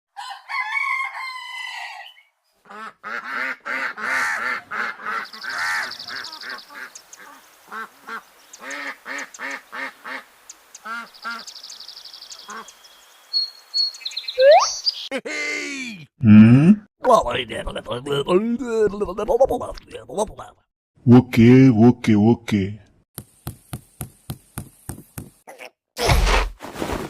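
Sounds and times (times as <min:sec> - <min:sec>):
waterfowl honking: 0:02.7 - 0:11.5
brief warbling sound: 0:14.4 - 0:14.8.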